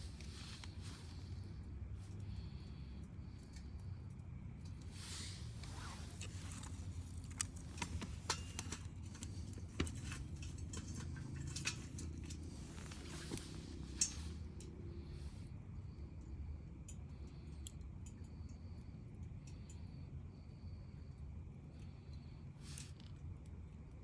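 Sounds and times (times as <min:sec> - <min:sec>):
bonfire crackling and popping: 0:00.0 - 0:15.4
low steady rumble: 0:00.0 - 0:24.0.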